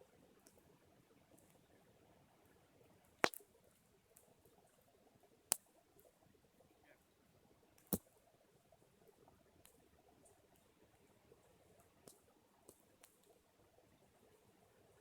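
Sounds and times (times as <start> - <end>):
sharp pops from burning wood: 3.2 - 3.4.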